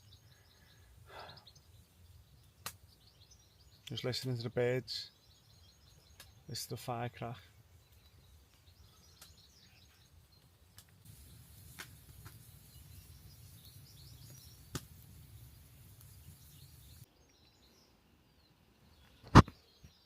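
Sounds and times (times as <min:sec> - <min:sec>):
faint birdsong: 0:00.0 - 0:20.0
campfire crackling and popping: 0:00.1 - 0:04.0, 0:05.8 - 0:06.4, 0:07.2 - 0:17.1.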